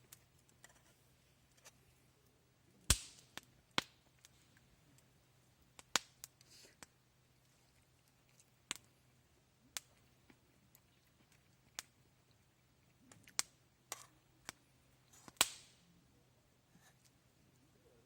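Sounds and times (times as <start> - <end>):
wood fire crackling: 2.9 - 5.1, 5.8 - 6.9, 8.7 - 8.9, 13.3 - 13.6, 14.5 - 15.8.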